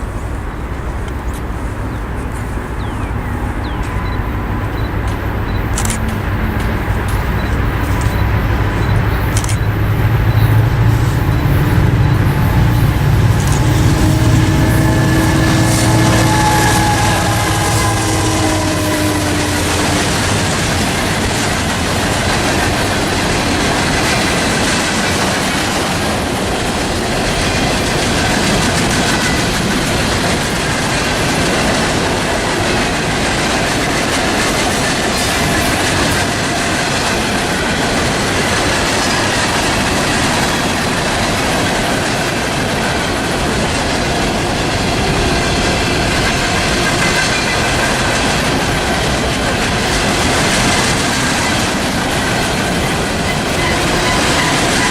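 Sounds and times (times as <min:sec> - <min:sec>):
freight train cars rolling: 0:00.0 - 0:54.9
high-pitched wheel squeal: 0:11.2 - 0:20.3.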